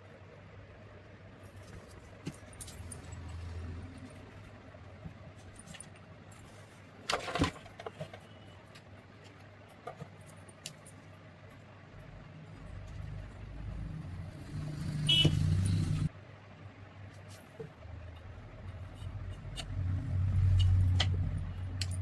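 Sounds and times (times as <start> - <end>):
metal parts clicking and clinking: 2.3 - 3.5, 10.2 - 11.1, 20.3 - 22.0.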